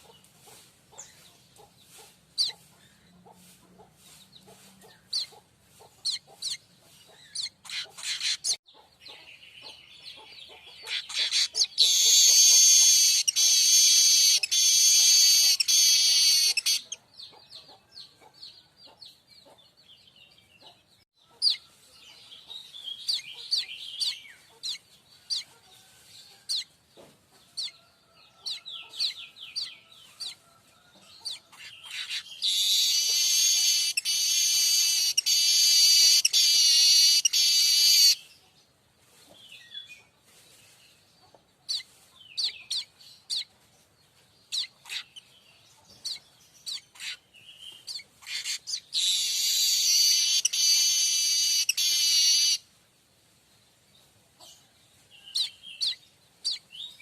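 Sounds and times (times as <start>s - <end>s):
bird chirping: 0.0s - 52.7s, 53.6s - 57.0s
buzzing bird song: 10.9s - 16.9s, 32.4s - 38.2s, 49.0s - 52.6s.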